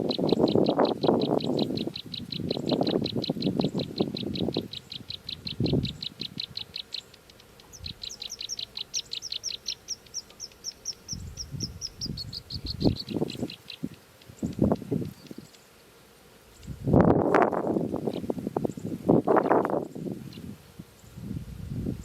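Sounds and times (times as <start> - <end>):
nestling birds chirping: 0.0 - 21.3
rustling at nest: 0.1 - 22.0.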